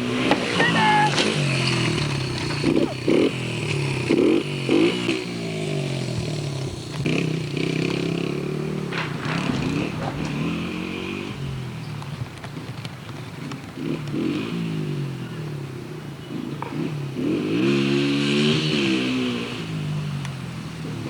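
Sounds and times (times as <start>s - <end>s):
dirt bike engine revving: 0.0s - 12.8s, 16.8s - 20.1s.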